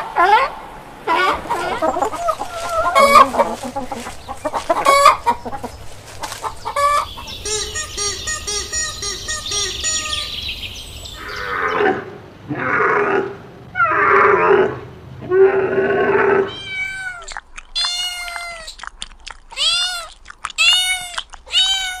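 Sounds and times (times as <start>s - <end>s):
rough animal cries: 1.1s - 5.4s, 11.2s - 18.9s, 19.5s - 22.0s
high-pitched cat meows: 16.5s - 18.8s, 19.5s - 22.0s.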